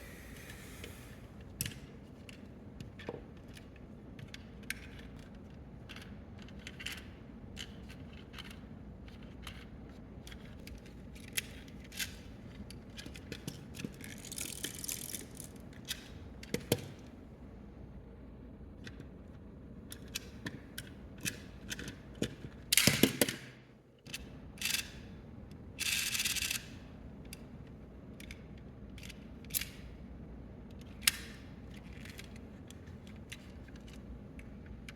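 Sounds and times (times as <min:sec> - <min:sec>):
plastic toy parts clicking: 0:13.8 - 0:15.6.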